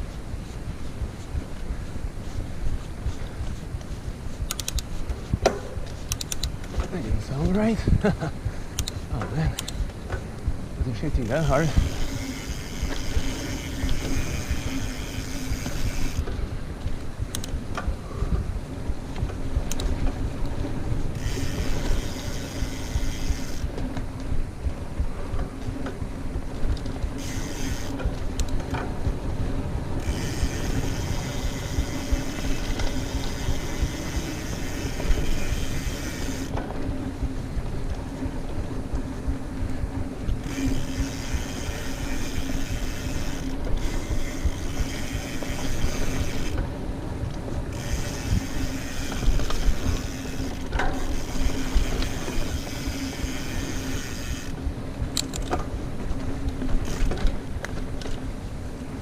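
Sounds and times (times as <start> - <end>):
bike drivetrain rattle: 0.0 - 59.0
freehub ratchet buzzing: 11.2 - 16.3, 21.1 - 23.7, 27.2 - 28.6, 30.0 - 36.6, 40.4 - 46.6, 47.7 - 54.6, 56.8 - 57.2.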